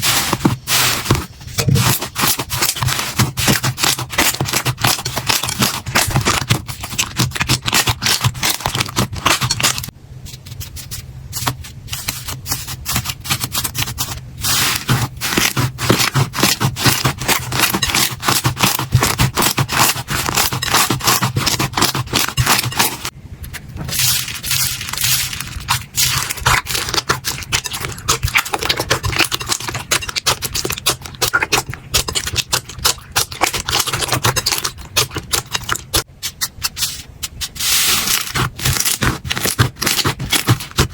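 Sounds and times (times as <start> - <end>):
steady low hum: 0.0 - 40.9
slime crackling and popping: 38.0 - 40.9.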